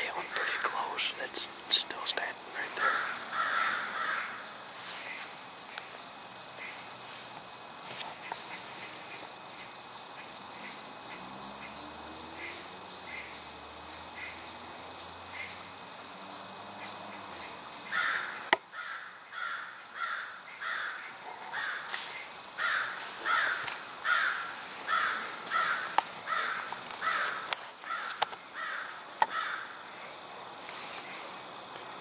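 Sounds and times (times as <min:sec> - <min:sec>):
bird harsh calls: 0:02.5 - 0:15.7, 0:16.3 - 0:29.8
sharp clicks: 0:26.7 - 0:28.4.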